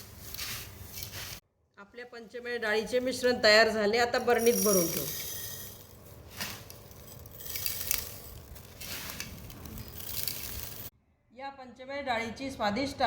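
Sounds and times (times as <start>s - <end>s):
grains clinking against jar: 4.2s - 10.9s
lentils rattling into a jar: 4.2s - 10.9s.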